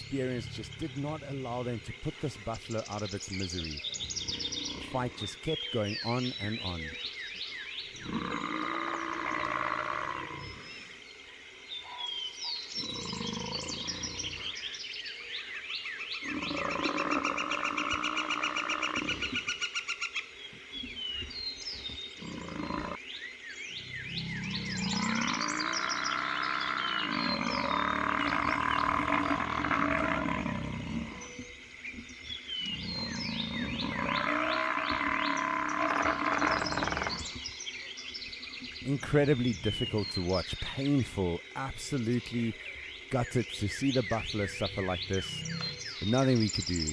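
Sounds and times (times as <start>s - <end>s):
lions growling: 0.0s - 6.9s, 8.0s - 11.0s, 12.7s - 14.6s, 16.2s - 19.5s, 21.8s - 23.0s, 23.7s - 31.5s, 32.6s - 37.5s, 45.0s - 46.9s
buffalo bellowing: 24.0s - 31.4s
steady chirping: 38.6s - 46.9s.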